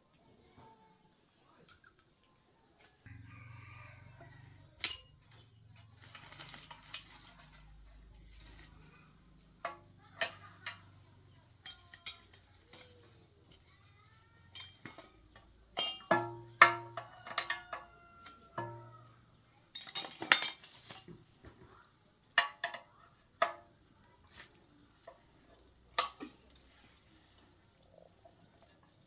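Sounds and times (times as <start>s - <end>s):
metal tools clinking: 4.2s - 8.9s, 9.6s - 19.0s, 19.7s - 21.2s.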